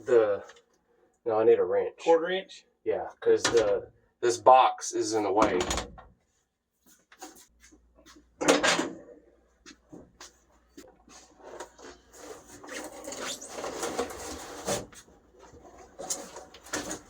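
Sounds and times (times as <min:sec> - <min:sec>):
scraping and rustling: 0:10.2 - 0:17.0.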